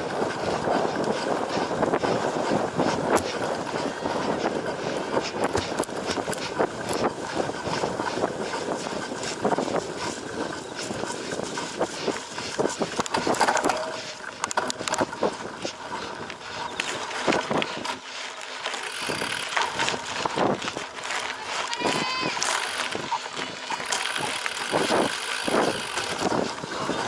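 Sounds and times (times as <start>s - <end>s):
bike rattling and knocking: 0.0s - 27.0s
tyre and wind noise: 0.0s - 27.0s.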